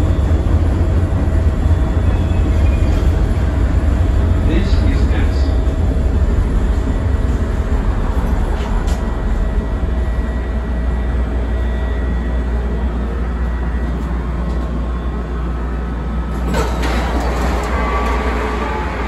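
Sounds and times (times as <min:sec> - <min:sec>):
train wheels rumbling on rails: 0:00.0 - 0:11.8, 0:16.2 - 0:19.0.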